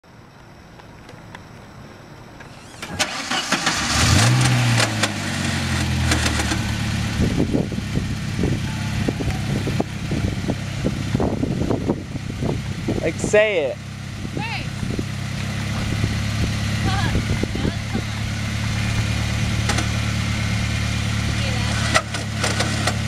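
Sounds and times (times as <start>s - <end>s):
car engine starting and idling: 0.2s - 23.0s
short knocks over engine idle: 19.6s - 20.0s.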